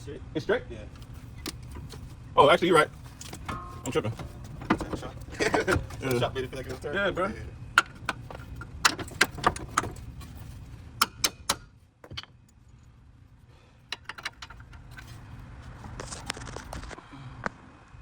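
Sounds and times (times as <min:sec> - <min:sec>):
rustling: 0:00.9 - 0:12.9, 0:13.8 - 0:17.0
sharp clicks and knocks: 0:01.0 - 0:02.1, 0:02.8 - 0:07.2, 0:07.8 - 0:12.8, 0:13.9 - 0:16.9.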